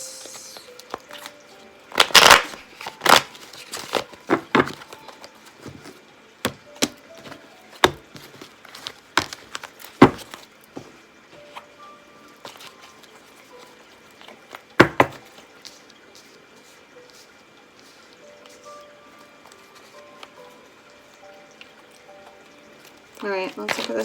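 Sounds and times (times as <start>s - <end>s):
cards being shuffled: 0.1s - 5.9s, 6.8s - 10.4s, 23.2s - 24.0s.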